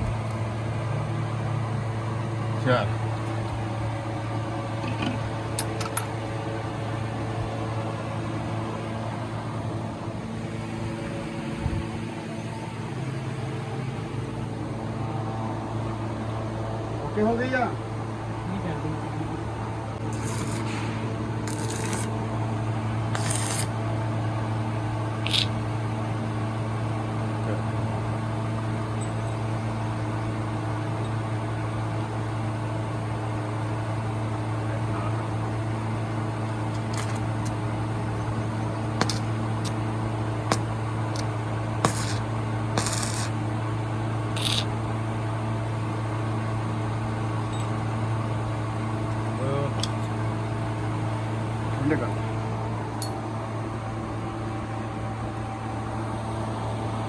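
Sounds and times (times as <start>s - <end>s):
machine hum with tones: 0.0s - 57.0s
short hissing bursts: 20.1s - 20.7s, 25.3s - 25.5s, 41.8s - 42.2s, 42.8s - 43.3s, 44.4s - 44.7s.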